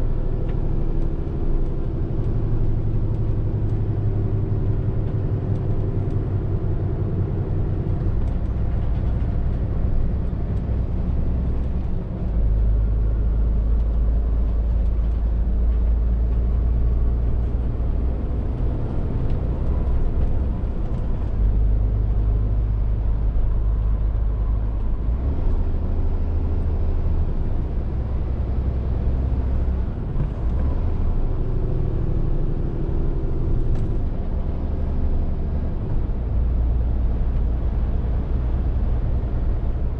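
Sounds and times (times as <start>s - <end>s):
lorry diesel engine running: 0.0s - 39.9s.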